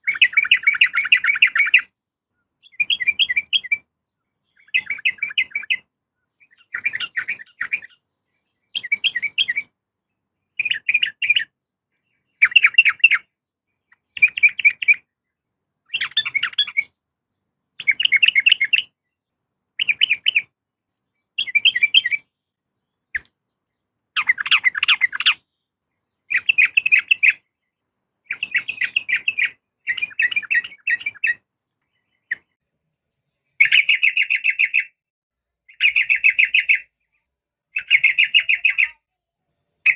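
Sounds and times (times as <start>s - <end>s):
bird chattering call: 24.2s - 25.4s.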